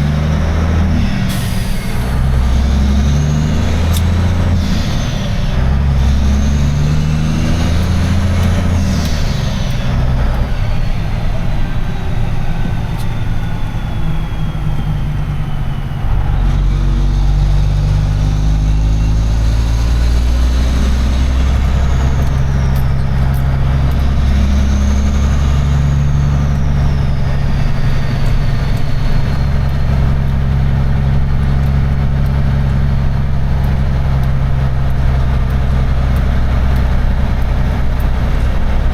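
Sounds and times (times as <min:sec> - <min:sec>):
truck diesel engine running: 0:00.0 - 0:38.9
high whistle: 0:00.8 - 0:30.5.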